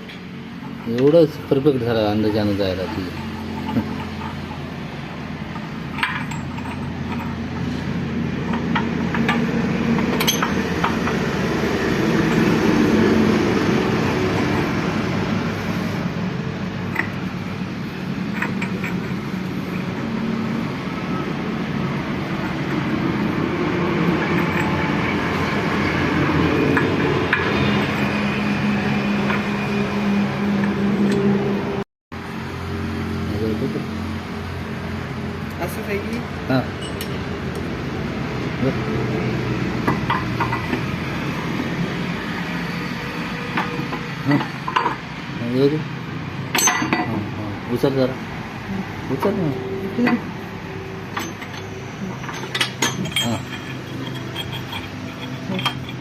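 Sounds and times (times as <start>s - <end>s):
engine running: 0.0s - 56.0s
sharp metallic clinks: 10.1s - 10.9s, 36.8s - 37.2s, 46.5s - 47.2s, 51.1s - 56.0s.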